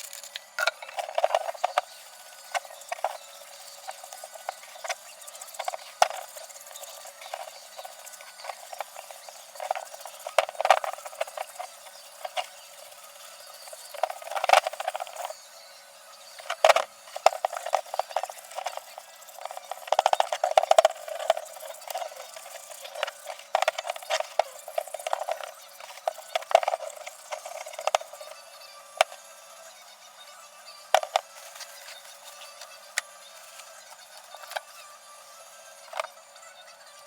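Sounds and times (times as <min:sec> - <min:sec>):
hand tools clicking and knocking: 0:00.0 - 0:01.8, 0:16.4 - 0:28.3.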